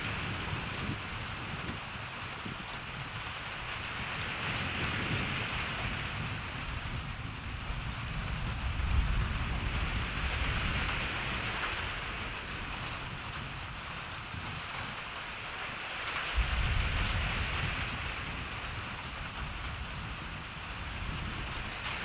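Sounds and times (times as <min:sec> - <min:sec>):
rain falling: 0:00.0 - 0:22.0
distant thunder rumble: 0:03.6 - 0:14.0, 0:16.0 - 0:22.0.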